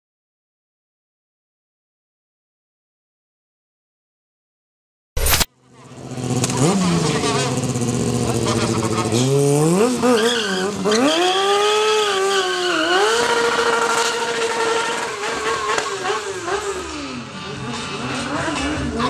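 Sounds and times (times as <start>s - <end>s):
motorcycle engine revving: 5.3s - 19.0s.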